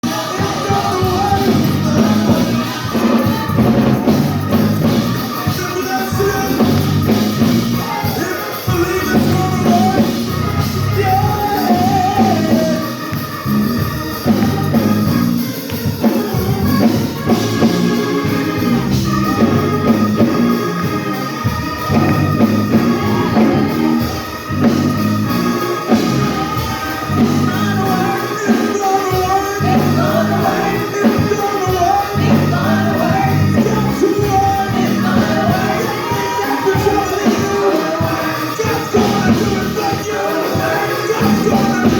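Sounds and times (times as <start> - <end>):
bass line: 0.0 - 5.5, 6.2 - 8.1, 8.7 - 15.4, 16.4 - 28.4, 29.5 - 30.9, 32.1 - 36.2
person singing: 0.0 - 13.4, 16.1 - 41.9
drum kit: 0.0 - 41.9.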